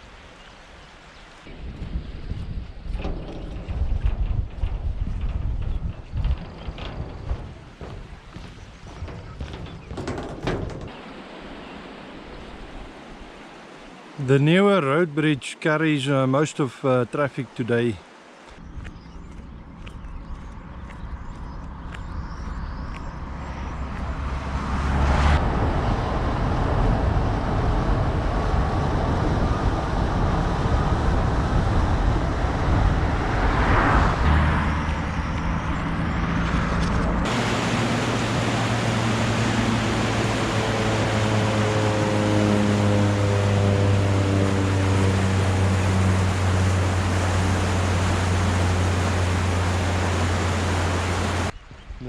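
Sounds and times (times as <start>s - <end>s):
low engine hum: 1.5s - 11.8s, 18.5s - 51.6s
road traffic on a bridge: 2.6s - 12.2s, 18.0s - 51.6s
vehicle passing: 23.2s - 27.8s, 32.0s - 51.5s.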